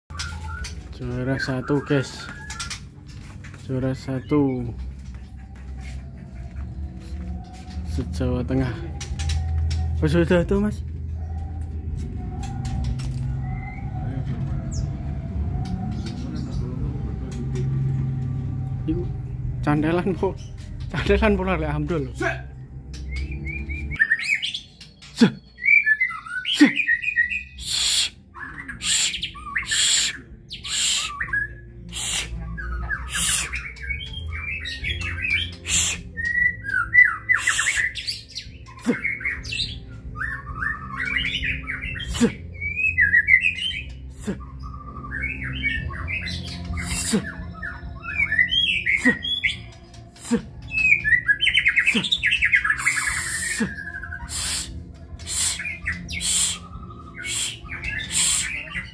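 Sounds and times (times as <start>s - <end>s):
bird singing warbled phrases: 0.0s - 58.9s.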